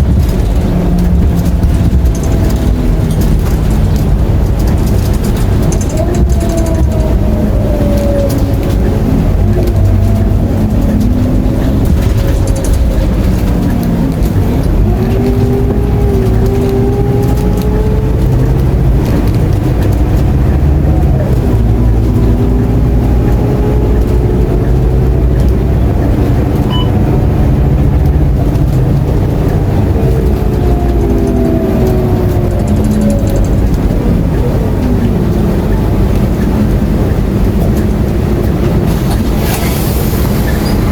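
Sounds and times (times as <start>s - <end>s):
bus engine rumble: 0.0s - 40.9s.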